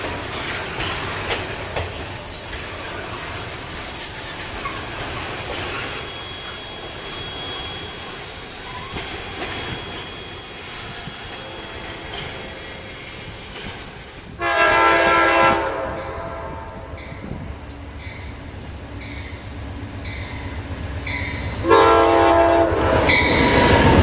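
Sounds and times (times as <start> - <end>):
freight train rolling past: 0.0 - 24.0
high wheel squeal: 0.2 - 14.8, 16.0 - 24.0
locomotive air horn: 9.8 - 12.7, 14.4 - 17.0, 21.6 - 23.7.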